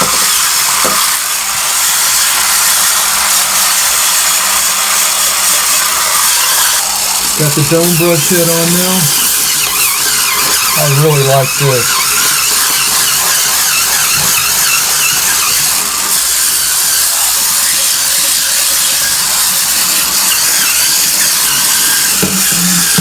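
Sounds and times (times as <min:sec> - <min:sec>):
spin brush motor whirring: 0:00.0 - 0:23.0
bristles scrubbing: 0:05.8 - 0:23.0.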